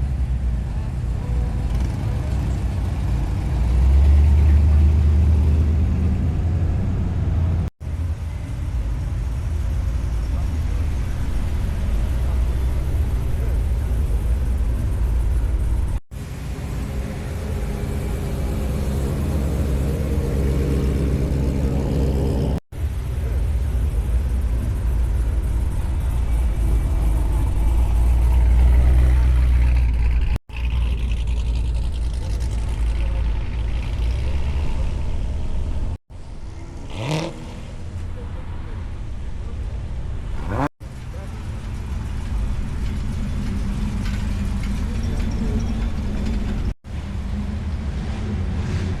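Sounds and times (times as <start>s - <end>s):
car engines revving: 0.0s - 49.0s.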